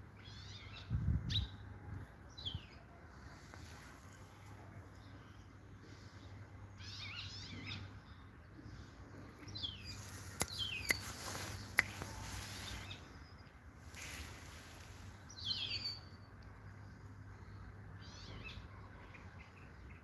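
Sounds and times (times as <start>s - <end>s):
finch twittering song: 9.4s - 16.4s.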